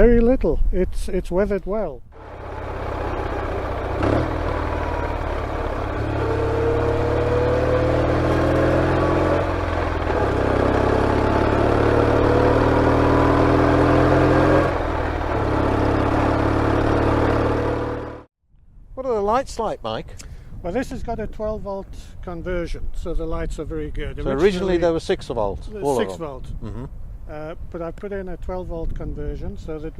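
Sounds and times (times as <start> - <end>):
motorcycle engine accelerating: 2.2 - 18.3.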